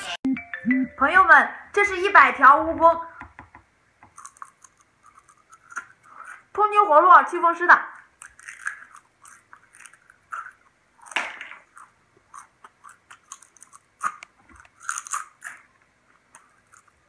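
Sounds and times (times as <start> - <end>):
crunchy chewing: 4.0 - 6.5, 8.0 - 17.0.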